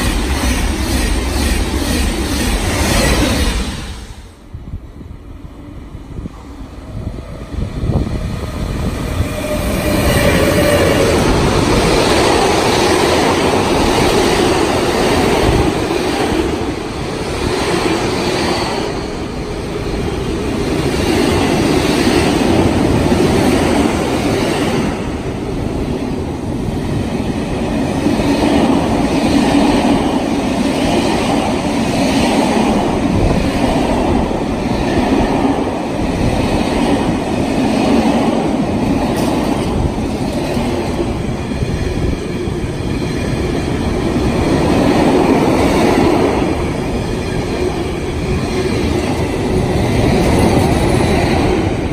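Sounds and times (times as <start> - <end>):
train wheels rumbling on rails: 0.0 - 51.9.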